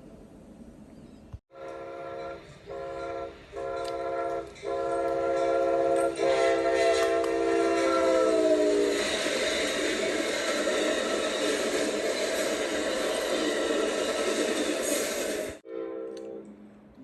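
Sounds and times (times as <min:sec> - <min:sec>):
locomotive air horn blasts: 0:01.5 - 0:08.9, 0:15.6 - 0:16.5
train wheels rumbling on rails: 0:01.6 - 0:15.6.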